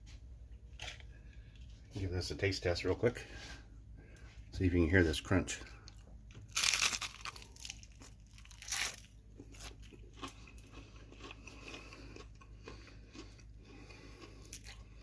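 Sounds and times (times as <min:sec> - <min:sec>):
chewing with small crunches: 0:00.1 - 0:02.1, 0:05.6 - 0:15.0
onion ring bitten crunching: 0:00.7 - 0:01.7, 0:05.8 - 0:15.0.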